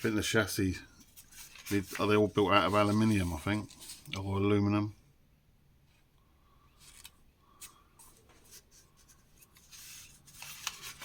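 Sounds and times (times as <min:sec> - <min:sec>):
magazine pages rustling: 0:00.0 - 0:04.4, 0:06.8 - 0:11.0.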